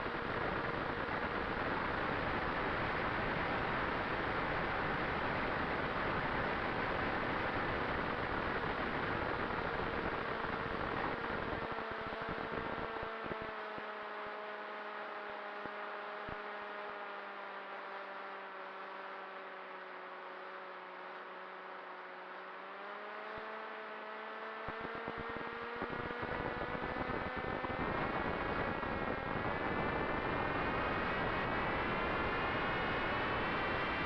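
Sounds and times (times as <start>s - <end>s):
drone motor and propeller whining: 0.0s - 34.0s
wind buffeting microphone: 24.7s - 34.0s.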